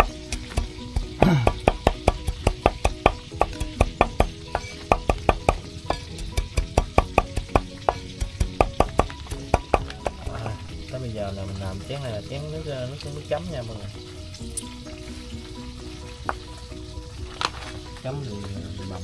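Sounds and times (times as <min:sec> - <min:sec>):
knife chopping on cutting board: 0:00.0 - 0:10.4
background music: 0:00.0 - 0:19.0.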